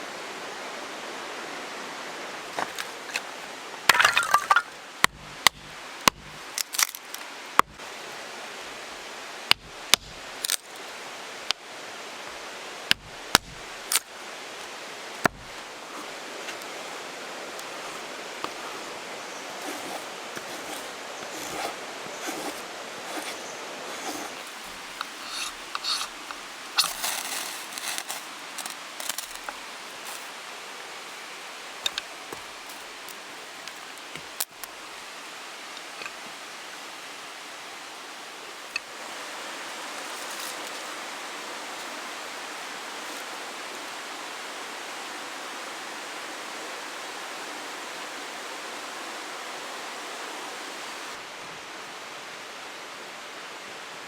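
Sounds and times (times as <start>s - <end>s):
steady hiss: 0.0s - 54.0s
axe striking firewood: 3.9s - 6.9s, 7.6s - 7.8s, 9.5s - 10.2s, 12.9s - 14.0s, 15.2s - 15.6s
soft crackles: 13.4s - 35.4s, 38.6s - 43.5s
short scraping sounds: 19.6s - 30.4s.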